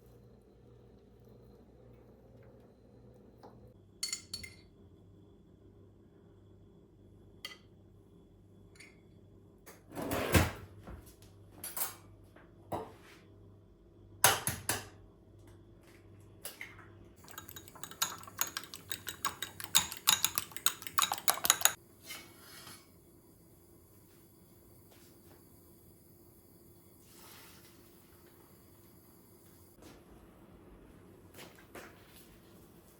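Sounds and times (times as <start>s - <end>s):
dishes and cutlery clinking: 17.2s - 21.8s.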